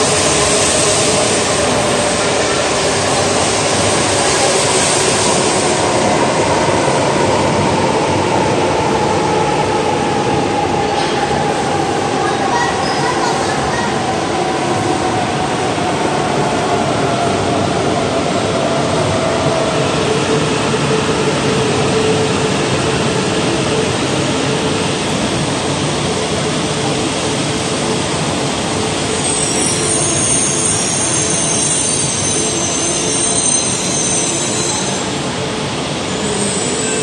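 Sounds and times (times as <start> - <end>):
train rumbling and humming: 0.0 - 37.0
train brakes squealing: 28.8 - 35.4, 36.0 - 37.0.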